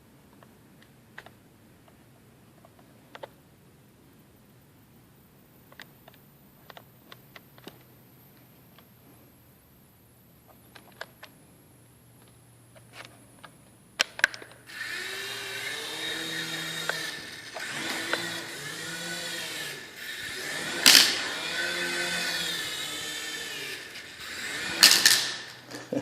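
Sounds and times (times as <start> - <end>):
helicopter rotor motor whine: 14.7 - 25.6.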